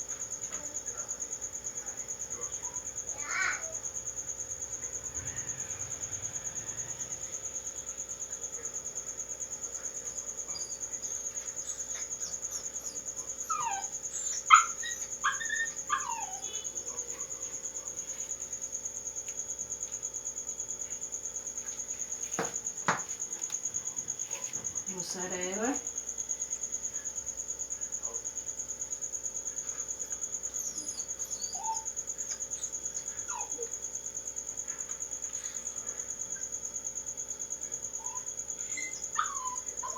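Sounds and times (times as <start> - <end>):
cricket chirping: 0.0 - 39.9
insect trilling: 0.8 - 9.0, 9.7 - 18.8, 29.0 - 39.9
dog whimpering yelps: 11.6 - 17.0, 30.6 - 33.7, 38.0 - 39.9.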